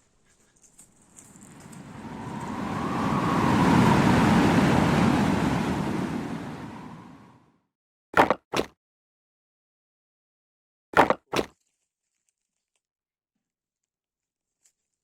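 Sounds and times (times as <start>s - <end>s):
rushing whoosh: 1.3s - 7.5s.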